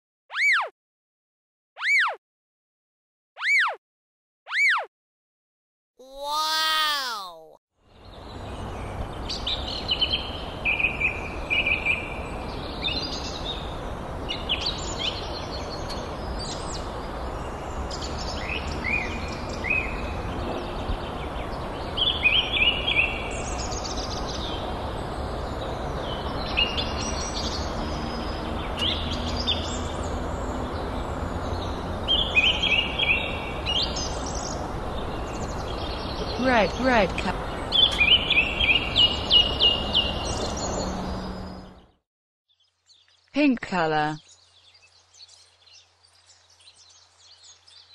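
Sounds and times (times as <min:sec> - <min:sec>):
outdoor background noise: 0:06.0 - 0:47.9
birds chirping and singing: 0:44.2 - 0:47.9.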